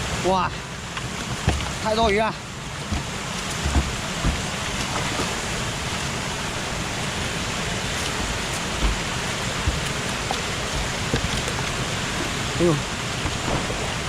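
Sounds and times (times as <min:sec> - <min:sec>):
water rushing over waterfall: 0:00.0 - 0:14.0
dull knocks: 0:01.0 - 0:05.7, 0:07.9 - 0:12.6.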